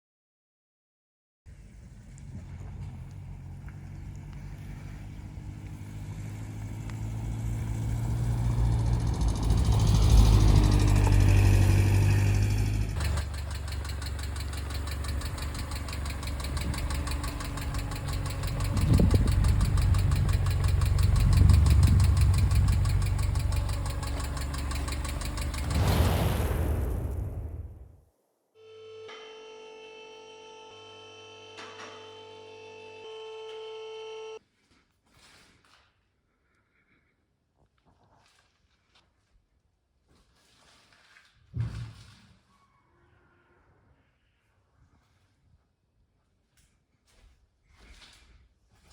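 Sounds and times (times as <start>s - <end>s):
engine running: 1.5s - 27.8s
hydraulic lifters ticking: 13.0s - 25.8s.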